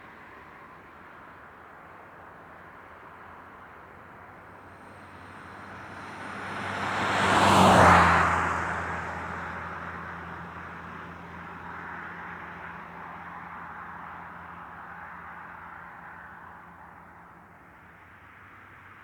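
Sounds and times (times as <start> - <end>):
steady traffic: 0.0 - 19.0
car passing by: 4.4 - 19.0.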